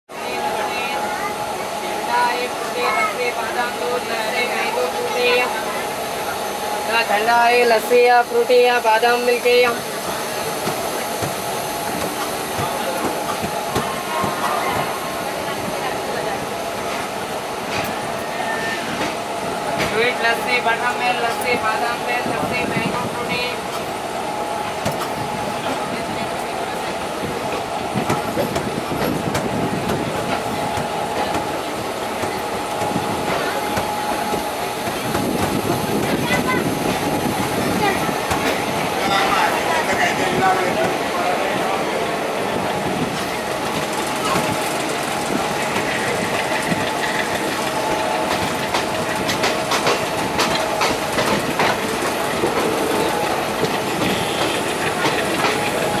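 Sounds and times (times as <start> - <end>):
train running rumble: 0.1 - 56.0
wheels clicking over rail joints: 43.2 - 56.0.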